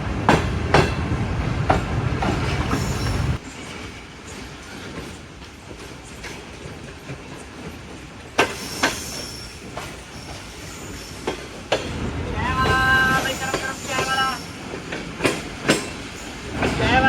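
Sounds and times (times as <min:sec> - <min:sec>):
train rumbling on rails: 0:00.0 - 0:17.0
wheels squealing against rail: 0:02.5 - 0:03.9, 0:08.4 - 0:11.6, 0:12.4 - 0:17.0
wheels clicking over rail joints: 0:11.2 - 0:17.0.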